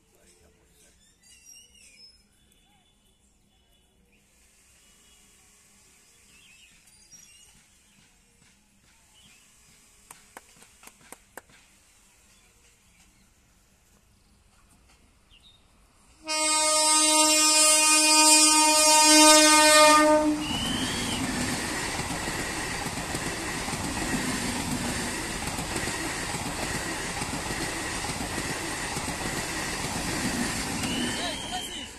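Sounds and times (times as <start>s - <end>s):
train wheels rumbling on rail: 4.5s - 31.9s
train horn blast: 16.2s - 21.4s.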